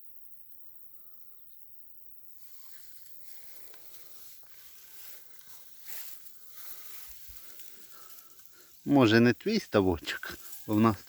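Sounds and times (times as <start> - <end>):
soft rustling with crackles: 2.4 - 11.0.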